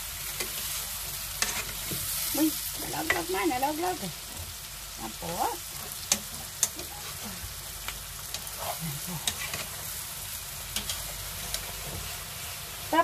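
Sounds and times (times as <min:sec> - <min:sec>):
food sizzling in oil: 0:00.0 - 0:13.0
utensil clicking against pan: 0:06.0 - 0:06.9.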